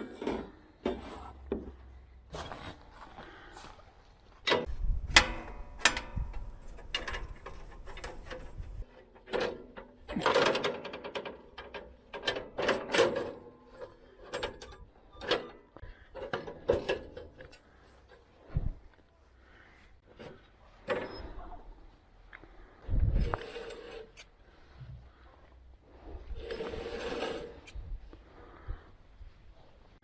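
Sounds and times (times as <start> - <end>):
metallic clanks and rattles: 4.4 - 17.7.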